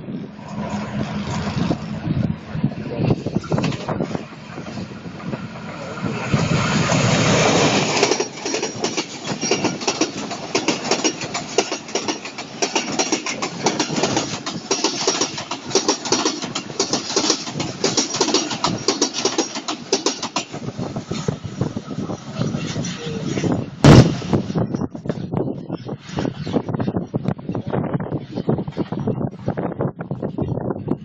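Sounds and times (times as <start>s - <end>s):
diesel locomotive engine: 0.0s - 31.0s
clickety-clack of train wheels: 3.4s - 21.4s.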